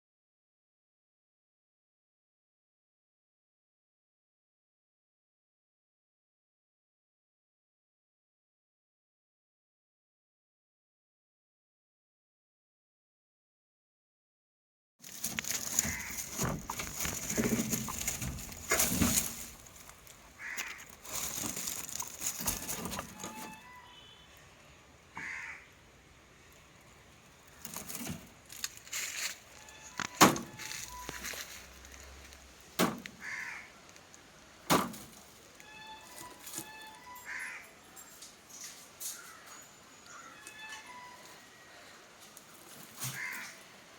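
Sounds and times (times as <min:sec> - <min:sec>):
rustling: 0:15.0 - 0:23.8, 0:26.5 - 0:43.7
crows cawing: 0:15.4 - 0:19.5, 0:20.3 - 0:22.8, 0:25.2 - 0:25.8, 0:33.1 - 0:33.9, 0:37.2 - 0:37.8, 0:39.1 - 0:40.8, 0:43.0 - 0:43.7
sharp knocks: 0:32.8 - 0:33.2, 0:34.7 - 0:35.1.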